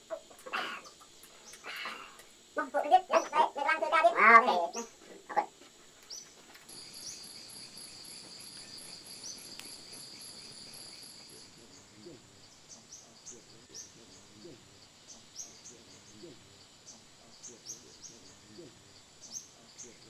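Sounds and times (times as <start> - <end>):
insect trilling: 0.0 - 20.0.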